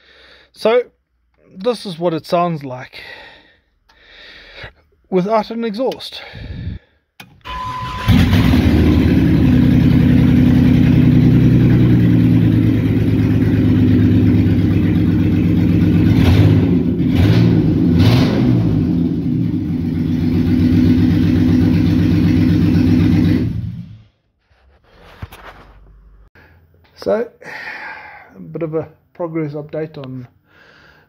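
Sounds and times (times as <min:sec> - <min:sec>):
loud open engine idling and revving: 0:07.9 - 0:24.1.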